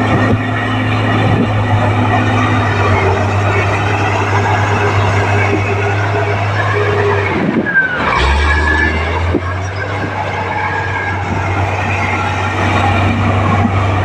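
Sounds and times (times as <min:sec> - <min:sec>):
bulldozer diesel engine running: 0:00.0 - 0:14.0
short falling squeal: 0:05.3 - 0:11.1.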